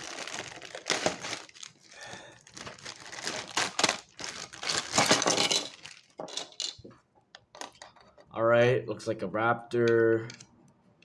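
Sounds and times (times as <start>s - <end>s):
packaging crinkling and rustling: 0.0s - 6.6s.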